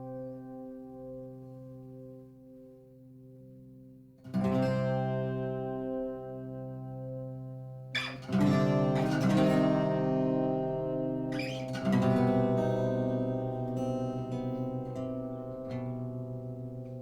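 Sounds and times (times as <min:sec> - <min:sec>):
acoustic guitar strumming: 0:07.9 - 0:17.0.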